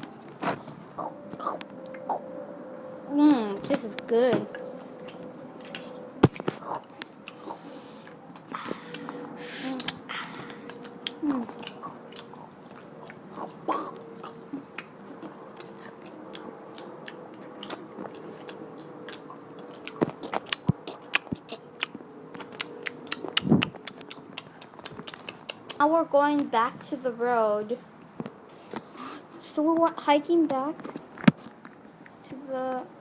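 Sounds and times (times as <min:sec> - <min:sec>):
person chewing and crunching: 0:04.5 - 0:25.8.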